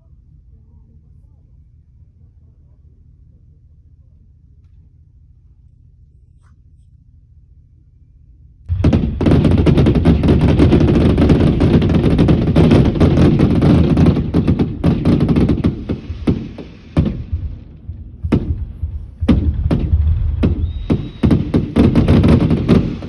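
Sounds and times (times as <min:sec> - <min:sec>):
fireworks bangs and crackles: 0:08.7 - 0:23.0.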